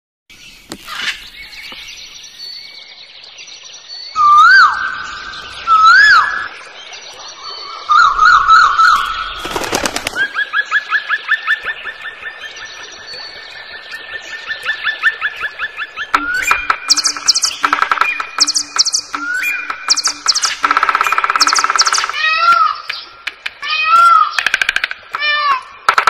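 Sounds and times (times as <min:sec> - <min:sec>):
whistled bird notes: 0:03.7 - 0:09.4, 0:14.3 - 0:23.1
warbling bird trill: 0:14.8 - 0:23.2
faint high chirping: 0:16.2 - 0:23.1.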